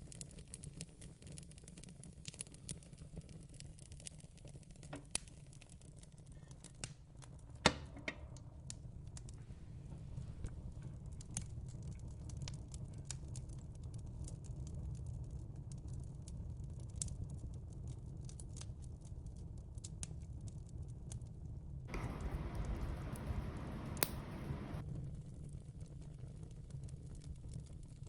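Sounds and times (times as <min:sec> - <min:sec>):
fireplace crackling: 0:21.9 - 0:24.8
low steady rumble: 0:21.9 - 0:24.8.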